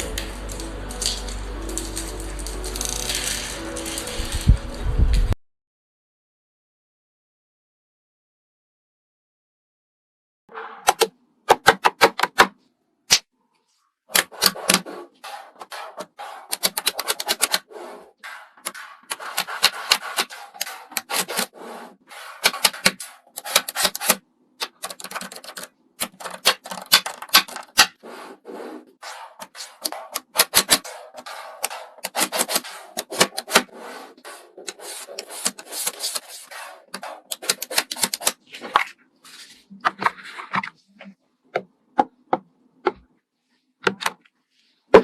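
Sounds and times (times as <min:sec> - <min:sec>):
small objects clicking: 0:00.0 - 0:04.6.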